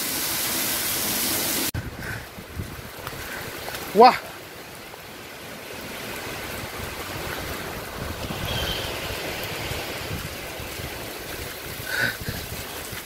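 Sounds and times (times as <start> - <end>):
heavy rain: 0.0 - 13.0
wind buffeting microphone: 1.8 - 3.6, 6.4 - 13.0
high-pitched call: 8.4 - 9.1.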